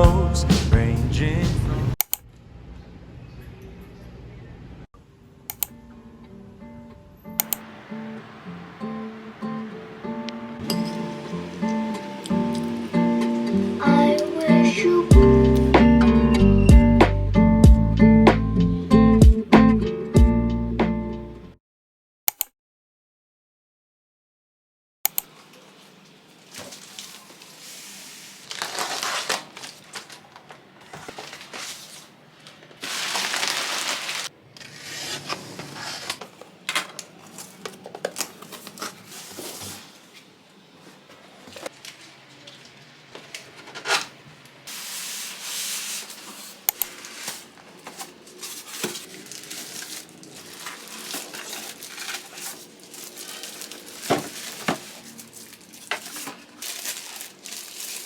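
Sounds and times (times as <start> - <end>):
packaging crinkling and rustling: 25.3 - 40.2, 41.5 - 58.0.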